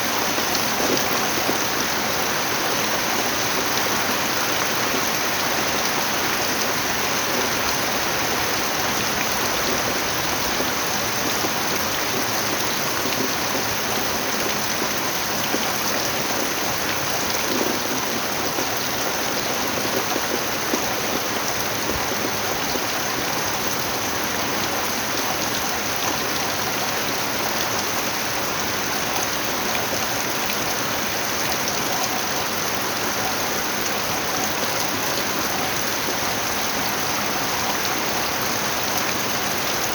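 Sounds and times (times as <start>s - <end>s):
heavy rain hissing: 0.0s - 28.0s.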